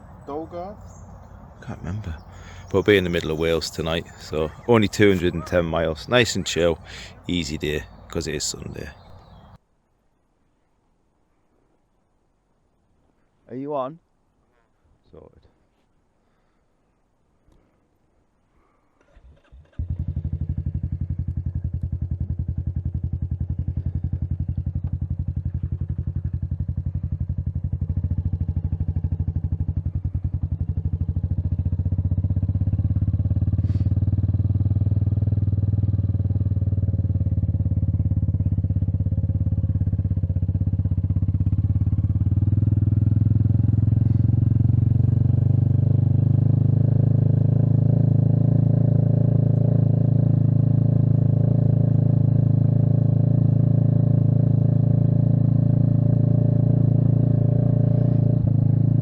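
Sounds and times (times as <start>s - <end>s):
motorcycle engine thumping: 19.7s - 28.9s.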